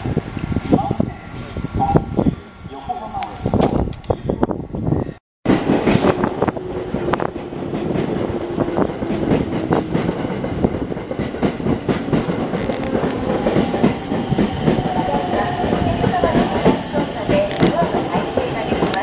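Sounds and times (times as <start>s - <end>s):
train wheels clacking: 5.5s - 19.0s.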